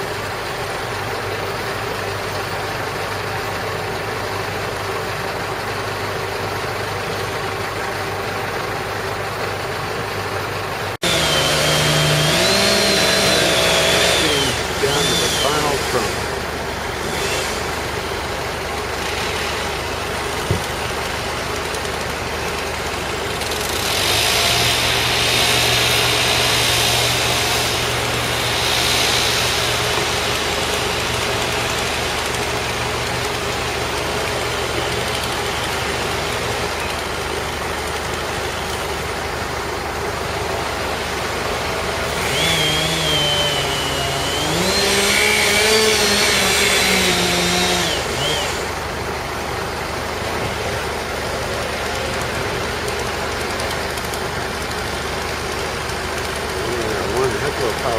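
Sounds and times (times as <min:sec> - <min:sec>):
engine running and revving: 0:11.0 - 0:39.1, 0:39.9 - 0:57.9.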